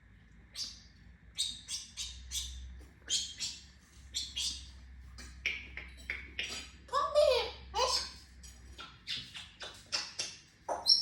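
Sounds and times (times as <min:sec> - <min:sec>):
parrot chirps and clicks: 0:05.2 - 0:06.8, 0:07.8 - 0:11.0.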